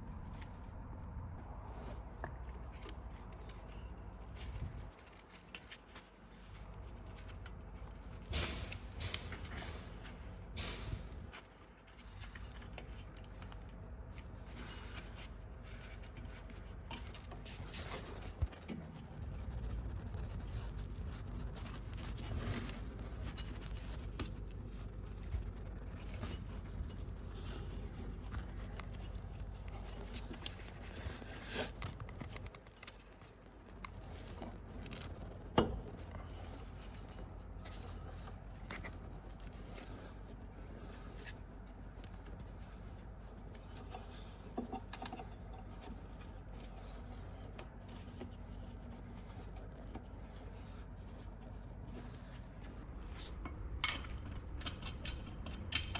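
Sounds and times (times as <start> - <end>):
low rumble: 0.0 - 2.6, 52.7 - 55.9
tools scraping and clicking: 2.2 - 55.9.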